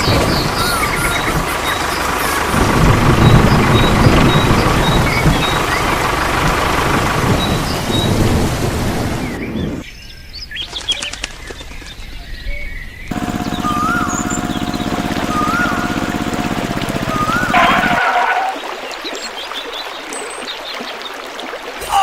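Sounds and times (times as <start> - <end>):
loud mechanical noise: 0.0 - 9.2, 13.1 - 18.2
birds chirping: 0.0 - 22.0
pulsing hum: 13.1 - 18.2.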